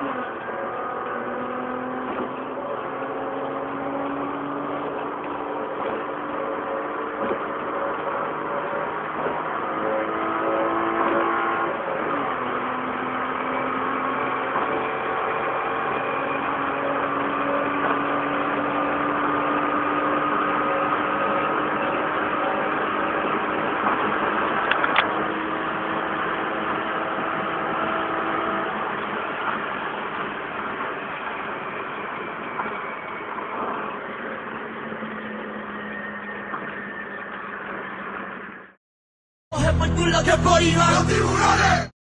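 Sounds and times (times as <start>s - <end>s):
car engine from inside cabin: 0.0s - 29.6s
road noise: 0.0s - 38.8s, 39.5s - 41.9s.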